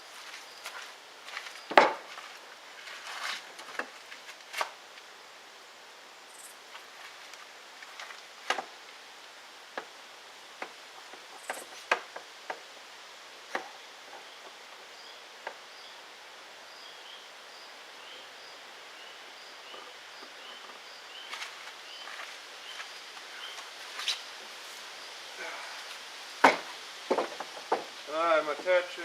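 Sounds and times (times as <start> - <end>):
lumber and tools knocking: 26.4 - 27.9.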